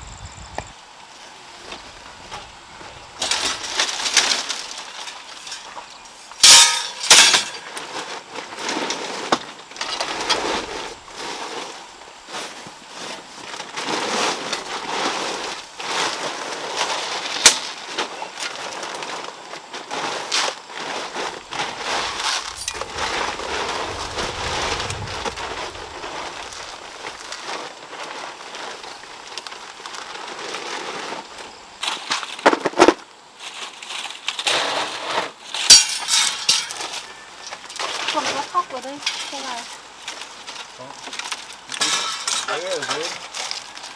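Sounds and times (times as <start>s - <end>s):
wood fire crackling and popping: 21.2s - 30.2s.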